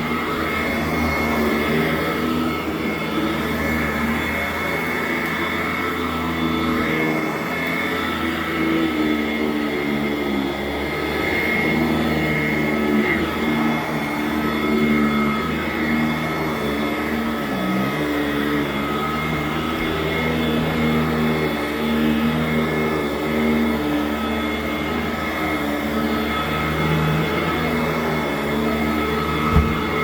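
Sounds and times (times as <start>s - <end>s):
upright vacuum running: 0.0s - 30.0s.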